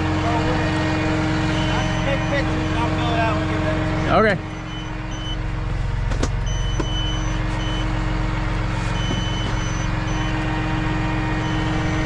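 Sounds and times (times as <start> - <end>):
vehicle engine idling: 0.0 - 12.0
electronic warning beeper: 1.5 - 5.4, 6.4 - 8.0, 9.0 - 10.5, 11.3 - 12.0.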